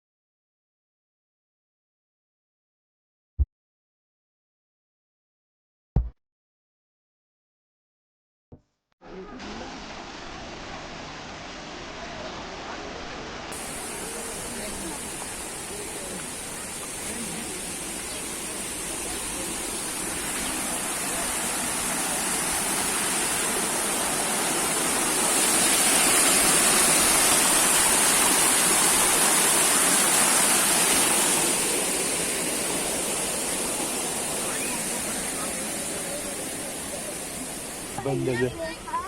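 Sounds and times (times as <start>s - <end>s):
waterfall roaring: 9.1s - 39.0s.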